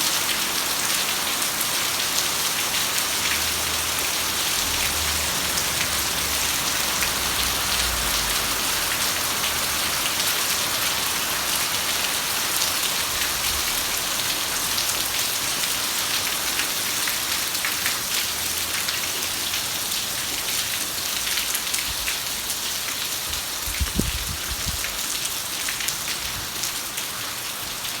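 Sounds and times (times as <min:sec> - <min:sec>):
heavy rain: 0:00.0 - 0:28.0.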